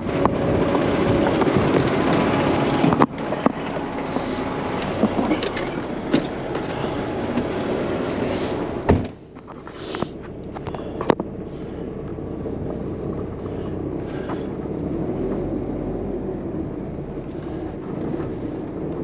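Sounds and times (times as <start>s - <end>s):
diesel engine under load: 0.0s - 19.0s
metallic clanks and knocks: 4.8s - 6.8s
heavy thump: 8.8s - 9.2s.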